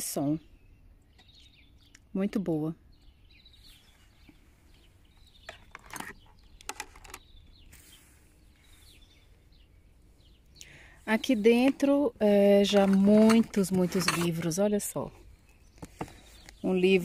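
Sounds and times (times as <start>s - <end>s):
faint bird chirps: 0.1s - 11.8s.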